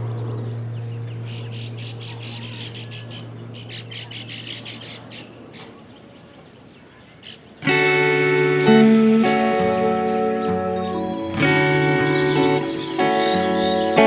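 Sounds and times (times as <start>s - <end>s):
birds chattering: 0.0s - 14.0s
background music: 7.7s - 14.0s.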